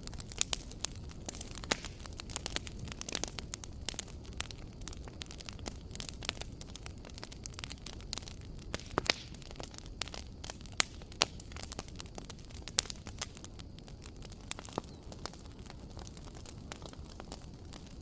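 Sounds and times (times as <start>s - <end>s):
fireplace fire crackling: 0.0s - 18.0s.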